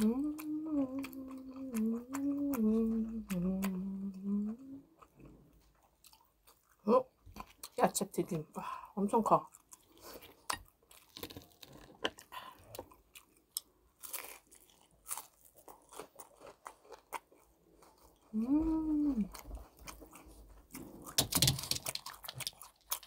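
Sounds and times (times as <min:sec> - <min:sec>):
person humming: 0:00.0 - 0:04.9, 0:18.3 - 0:19.4
crunchy bites and chewing: 0:09.5 - 0:18.4, 0:19.3 - 0:23.0.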